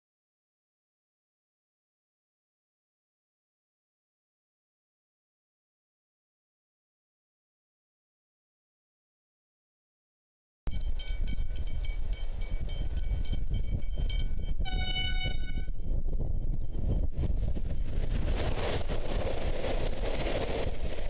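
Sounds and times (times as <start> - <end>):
train wheel and rail noise: 10.7 - 21.0
wind rumbling on microphone: 10.7 - 21.0
train horn: 14.6 - 15.8.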